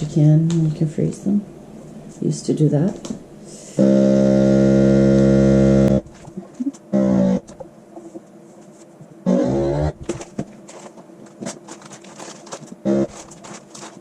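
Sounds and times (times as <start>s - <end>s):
vacuum sealer pump humming: 3.4s - 8.2s, 9.1s - 14.0s.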